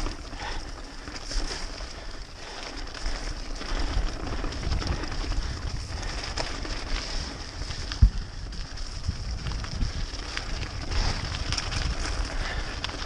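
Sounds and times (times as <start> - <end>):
bike tyres on muddy trail: 0.0 - 13.0
wind rumble on microphone: 3.2 - 13.0.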